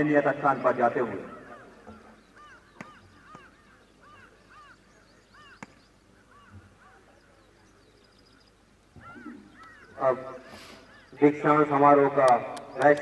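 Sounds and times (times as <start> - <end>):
faint bird chirps: 0.4 - 11.4
sharp clicks: 12.2 - 13.0.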